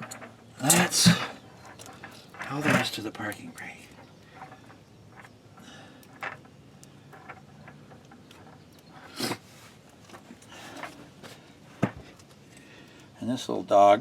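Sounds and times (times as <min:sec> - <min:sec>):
metal parts scraping: 0:00.0 - 0:11.2.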